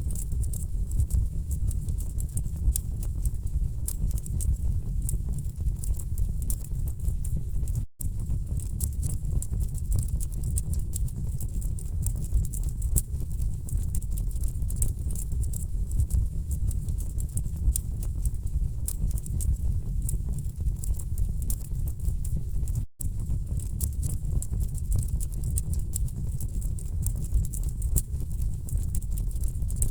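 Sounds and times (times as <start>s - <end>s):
fire crackling and popping: 22.7s - 29.9s.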